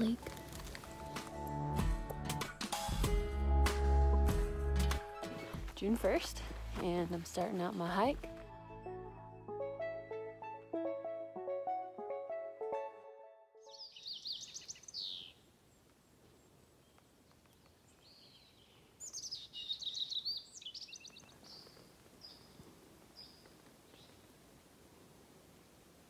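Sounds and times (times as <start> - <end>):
background music: 0.0 - 13.8
songbird singing: 13.7 - 24.3.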